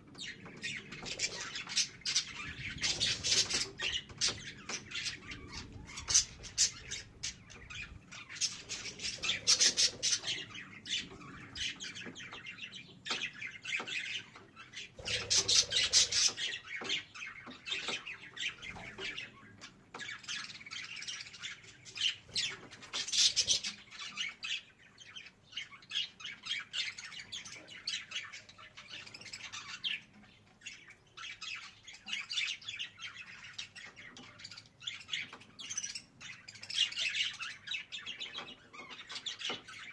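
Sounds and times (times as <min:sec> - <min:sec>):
budgerigar chattering and warbling: 0:00.3 - 0:12.4, 0:13.2 - 0:19.4, 0:21.5 - 0:24.6.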